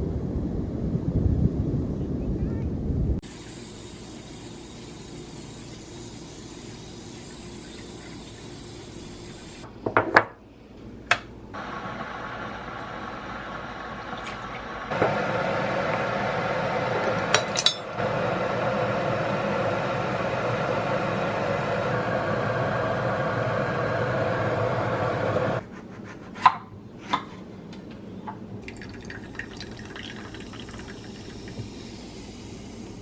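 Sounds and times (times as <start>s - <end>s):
dishes clinking: 17.4s - 17.9s
tap water running into vessel: 28.6s - 32.1s.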